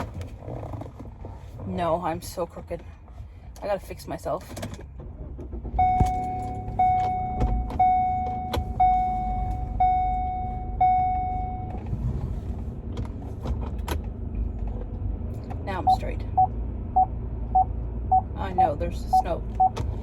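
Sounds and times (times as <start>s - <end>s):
car engine rumbling: 0.0s - 20.0s
car parking sensor beeping: 5.8s - 11.8s, 15.8s - 19.8s.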